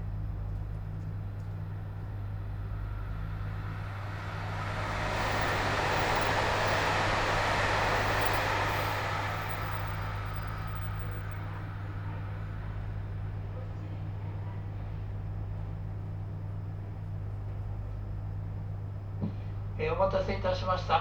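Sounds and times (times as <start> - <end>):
train equipment humming: 0.0 - 18.5
rushing noise: 1.4 - 13.6.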